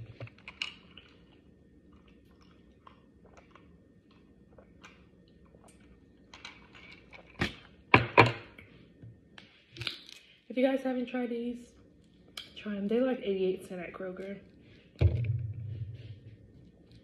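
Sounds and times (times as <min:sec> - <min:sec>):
person chewing food: 0:00.0 - 0:07.4
sharp thumps: 0:15.0 - 0:16.3.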